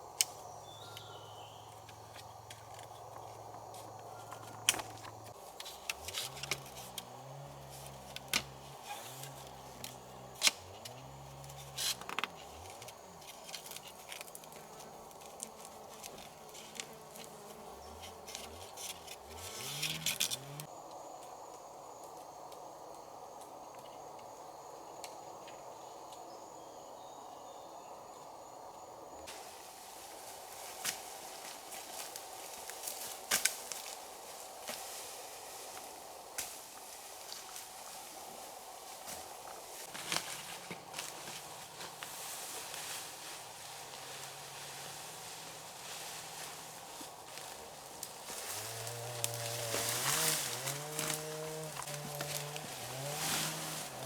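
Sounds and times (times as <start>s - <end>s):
rainforest insects: 0.0s - 54.0s
flying insect buzzing: 4.7s - 20.7s, 42.9s - 54.0s.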